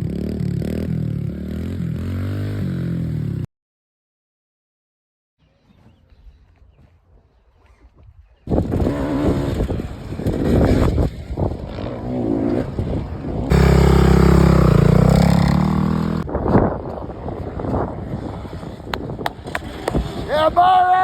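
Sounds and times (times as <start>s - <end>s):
dirt bike engines revving: 8.5s - 21.0s.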